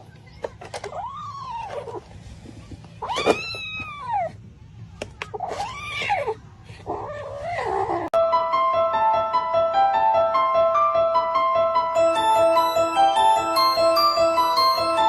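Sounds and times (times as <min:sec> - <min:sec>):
cat meowing: 0:03.0 - 0:04.4
bell-like keyboard tune: 0:08.2 - 0:15.0.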